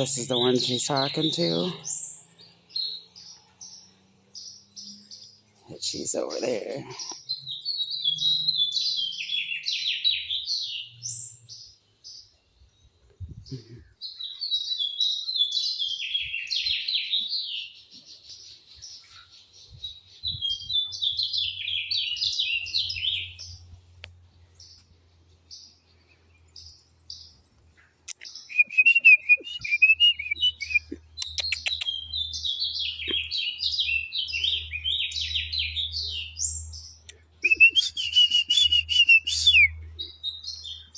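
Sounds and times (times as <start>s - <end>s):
songbird chirping: 0.0s - 40.9s
lower bird trill: 28.1s - 40.9s.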